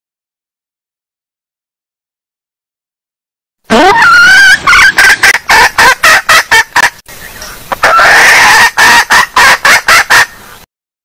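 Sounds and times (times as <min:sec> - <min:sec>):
drawn-out hen call: 0:03.7 - 0:10.7
hen clucking: 0:03.7 - 0:10.7.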